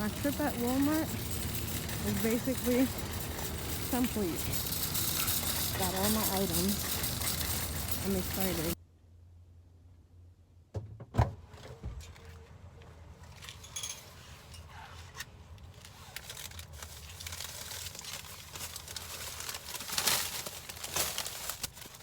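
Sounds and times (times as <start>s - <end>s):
plastic bags rustling: 0.0s - 8.8s, 15.6s - 22.0s.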